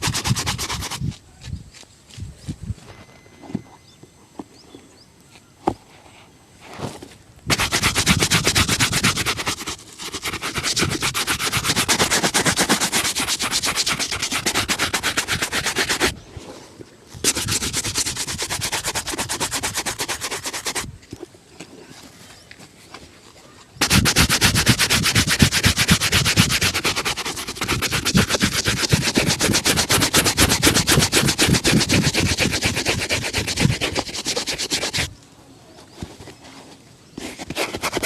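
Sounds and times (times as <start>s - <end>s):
shoe brush scrubbing: 0.0s - 1.2s, 7.5s - 16.2s, 17.2s - 20.9s, 23.8s - 35.1s, 37.2s - 38.0s.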